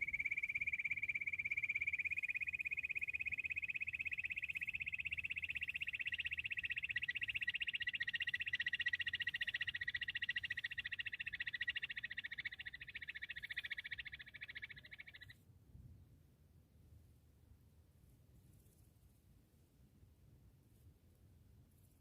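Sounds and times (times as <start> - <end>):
quail trilling: 0.0 - 15.3.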